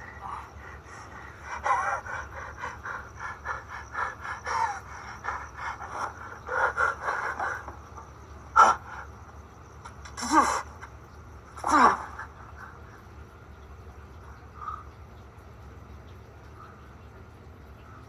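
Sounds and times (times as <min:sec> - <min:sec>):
men panting and gasping: 0:00.0 - 0:11.0, 0:11.6 - 0:13.1.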